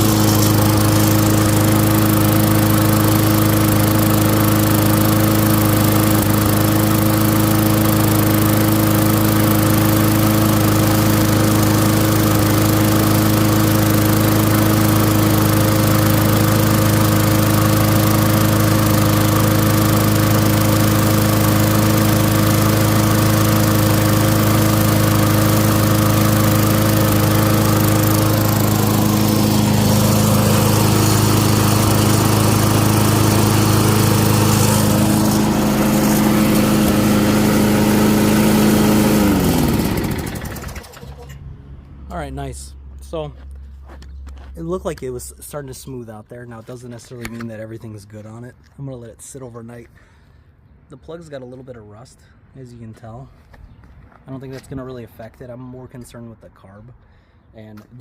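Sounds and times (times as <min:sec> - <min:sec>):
lawn mower engine running: 0:00.0 - 0:42.4.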